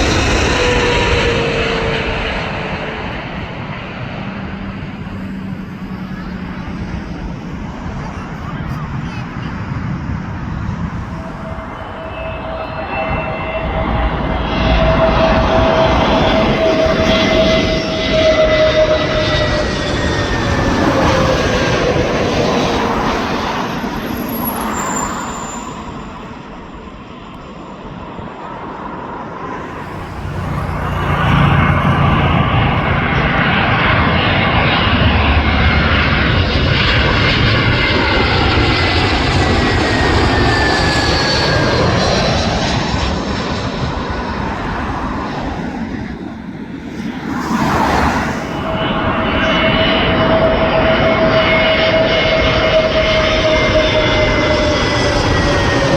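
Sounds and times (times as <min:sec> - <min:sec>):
jet airliner passing overhead: 0:00.0 - 0:55.9.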